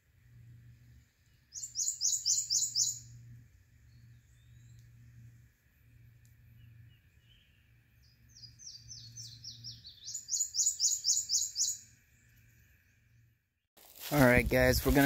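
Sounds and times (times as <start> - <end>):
songbird singing and trilling: 1.3 - 5.1, 6.5 - 13.3.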